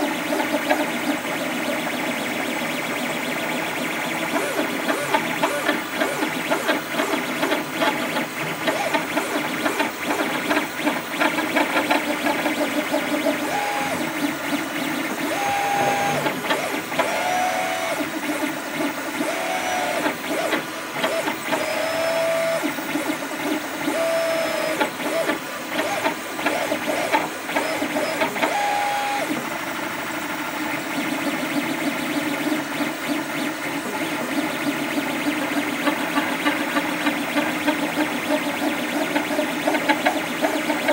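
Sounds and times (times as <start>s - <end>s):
stepper motors whining: 0.0s - 29.5s
printer rattling buzz: 0.0s - 29.7s, 30.6s - 40.9s.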